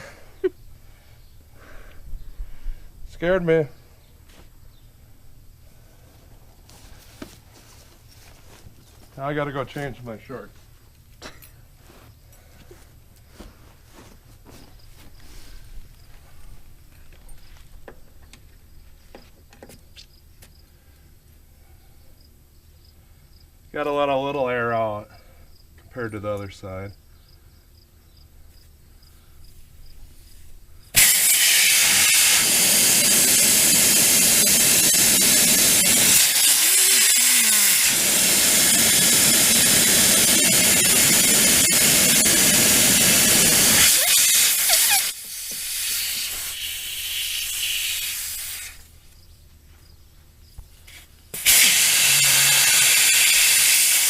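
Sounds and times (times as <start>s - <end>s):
air hissing out of tire valve: 30.3s - 48.9s, 51.3s - 54.0s.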